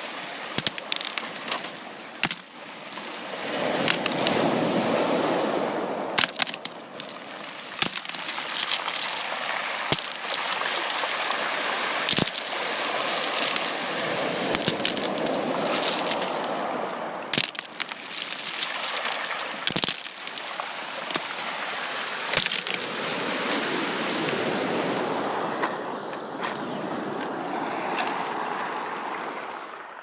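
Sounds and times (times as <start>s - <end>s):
sea waves washing onto beach: 0.0s - 29.8s.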